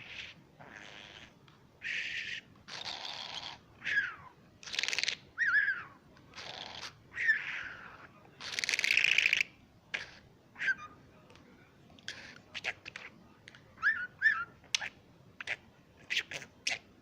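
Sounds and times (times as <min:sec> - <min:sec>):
bird imitating snoring: 0:00.0 - 0:04.0, 0:04.6 - 0:05.2, 0:06.4 - 0:10.3.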